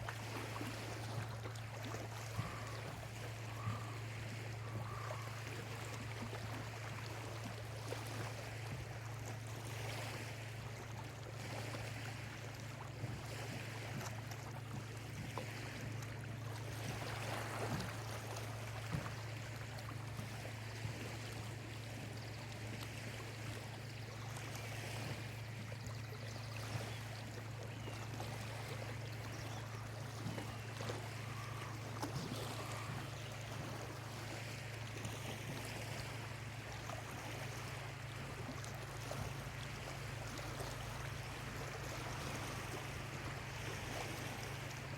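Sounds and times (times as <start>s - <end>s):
lake waves lapping on shore: 0.0s - 44.9s
faint bird calls: 2.0s - 7.0s, 26.3s - 34.2s.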